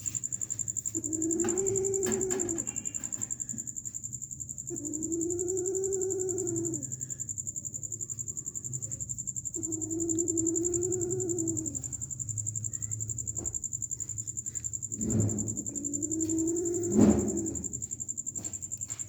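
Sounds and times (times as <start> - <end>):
cat meowing: 1.1 - 2.8.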